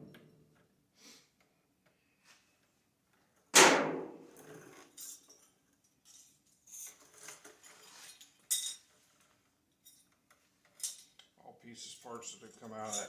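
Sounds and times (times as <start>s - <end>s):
metal clinks and rattles: 4.3s - 11.4s, 12.4s - 13.0s.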